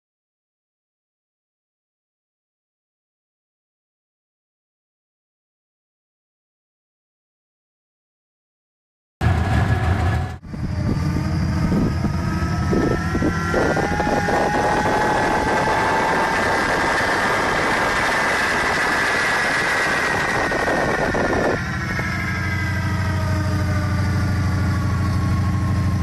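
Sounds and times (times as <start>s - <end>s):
engine running under load: 9.2s - 26.0s.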